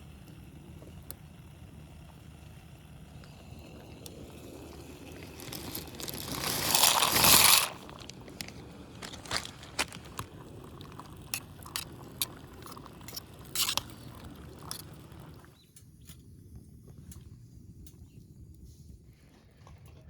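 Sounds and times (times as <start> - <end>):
low steady fire rumble: 0.0 - 20.0
wood fire crackling and popping: 0.2 - 15.6.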